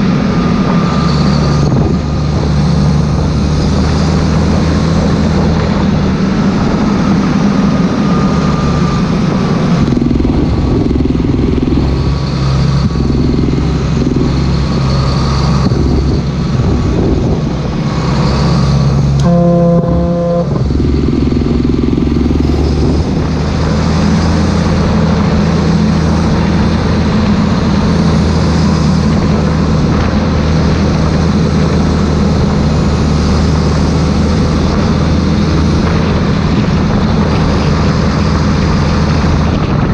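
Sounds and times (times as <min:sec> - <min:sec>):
tractor diesel engine running: 0:00.0 - 0:39.9
brief high-pitched tone: 0:19.2 - 0:21.0.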